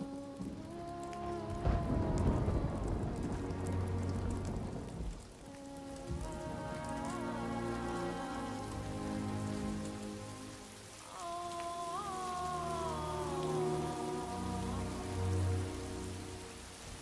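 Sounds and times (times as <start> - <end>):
rain falling: 0.0 - 17.0
soft background music: 0.0 - 17.0.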